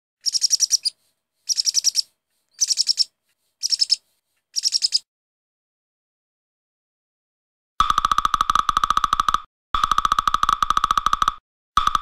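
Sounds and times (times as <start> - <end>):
bird chirping trills: 0.2 - 4.0, 4.6 - 5.0.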